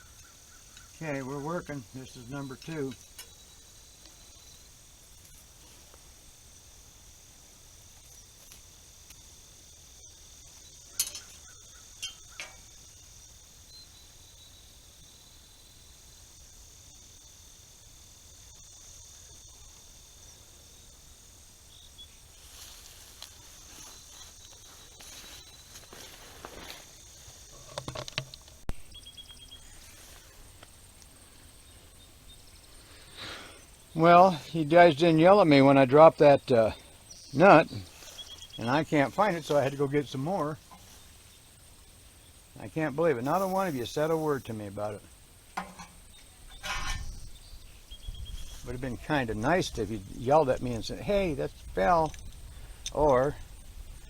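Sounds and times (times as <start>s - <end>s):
insects chirring: 0.0s - 54.0s
hand tools clinking on metal: 10.9s - 11.4s, 12.0s - 12.7s, 45.6s - 47.2s.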